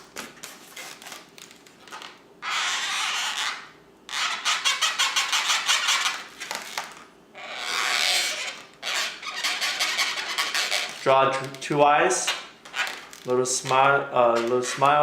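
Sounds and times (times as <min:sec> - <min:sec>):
marker scratching on balloon: 0:02.4 - 0:13.2, 0:14.2 - 0:15.0.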